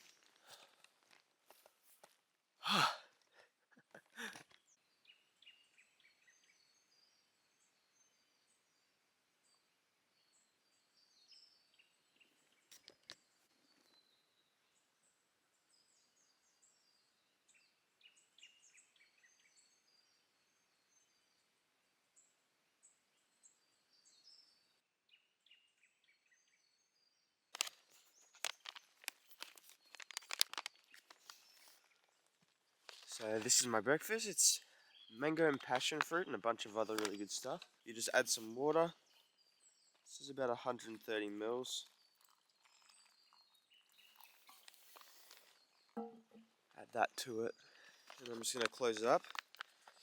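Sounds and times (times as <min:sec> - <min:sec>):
faint birds chirping: 0:00.0 - 0:50.0
sharp crinkling clicks: 0:27.5 - 0:33.7, 0:35.4 - 0:38.2, 0:47.8 - 0:50.0
brief rustle: 0:27.5 - 0:33.8, 0:36.8 - 0:37.8, 0:41.8 - 0:46.0.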